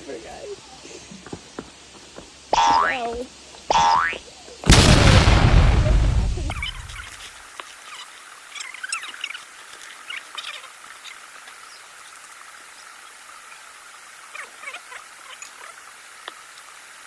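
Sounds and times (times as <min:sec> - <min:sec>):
steady background hiss: 0:00.0 - 0:17.0
frogs chirping: 0:02.5 - 0:04.7, 0:06.5 - 0:16.6.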